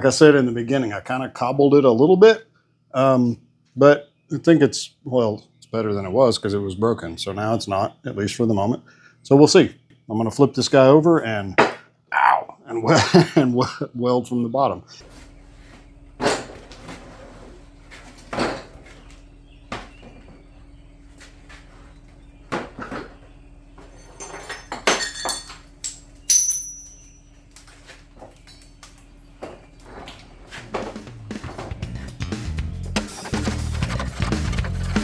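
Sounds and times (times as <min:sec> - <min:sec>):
steady low hum: 0:00.0 - 0:35.0
metal clanks and knocks: 0:15.0 - 0:35.0
high metallic ring: 0:24.4 - 0:27.6.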